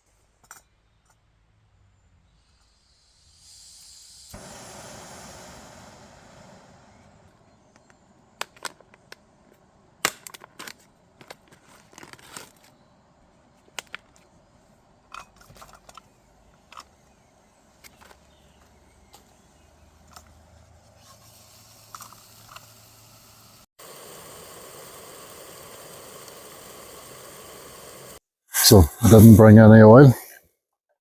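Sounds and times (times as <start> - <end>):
cooking gear clicking and tapping: 7.7 - 9.2.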